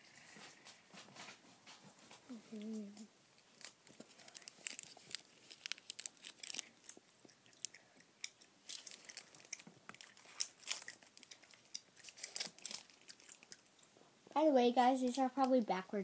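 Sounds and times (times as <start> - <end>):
candy wrapper crinkling: 2.5 - 13.8
candy crunching while chewed: 2.5 - 13.9.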